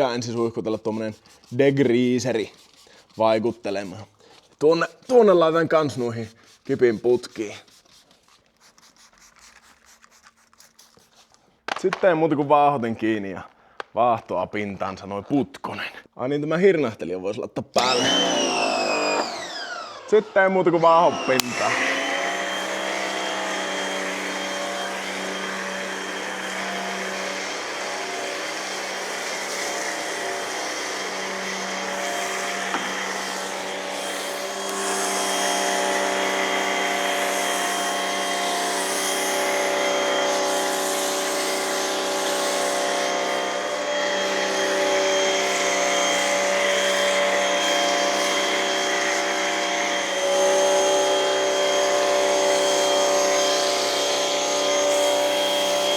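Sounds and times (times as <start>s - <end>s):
pressure washer pump humming: 17.8s - 55.9s.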